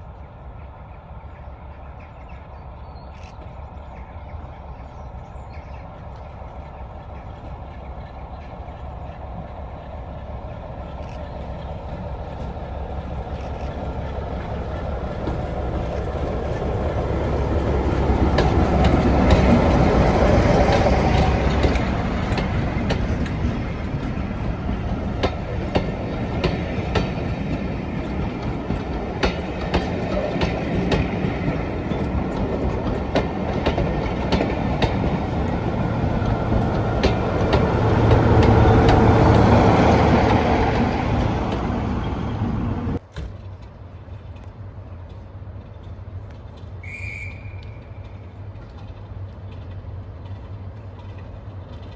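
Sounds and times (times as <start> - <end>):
diesel locomotive engine: 0.0 - 51.9
train wheels clicking on rail joints: 5.5 - 51.9.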